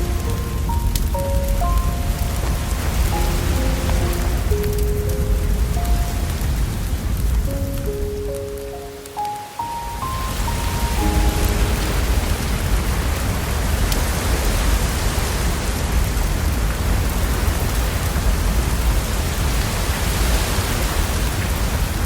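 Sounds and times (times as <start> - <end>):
low rumble: 0.0 - 8.4, 10.2 - 14.3
steady rain hiss: 0.0 - 22.0.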